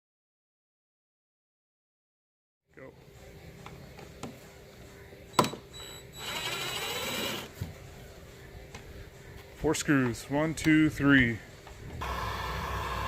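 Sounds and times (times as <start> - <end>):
cordless drill running: 5.8 - 7.5, 12.0 - 13.0.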